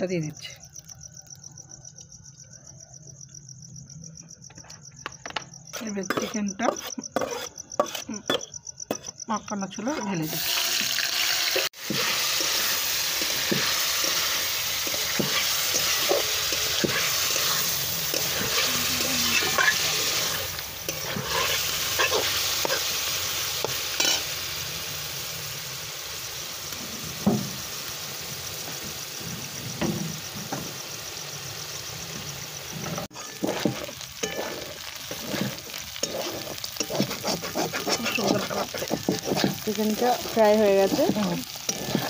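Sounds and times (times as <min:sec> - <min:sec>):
metal spatula scraping wok: 0:05.7 - 0:09.2, 0:10.0 - 0:24.5, 0:32.8 - 0:42.0
chicken sizzling in hot oil: 0:10.1 - 0:42.0.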